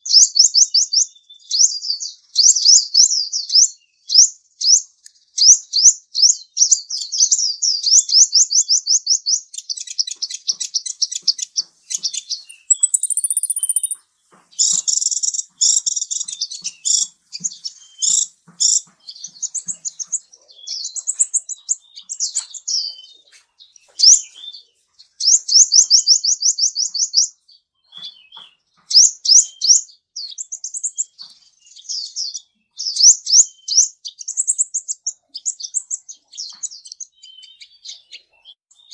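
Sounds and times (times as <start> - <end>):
small bird singing: 0.0 - 38.9.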